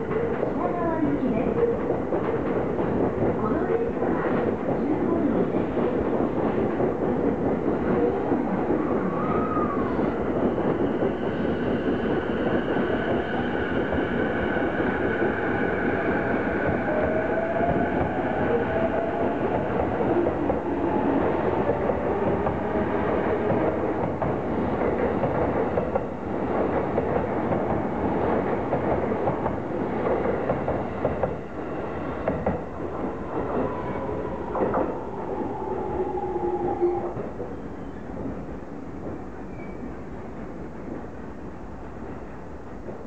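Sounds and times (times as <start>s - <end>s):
train motor whine rising: 34.9s - 37.2s.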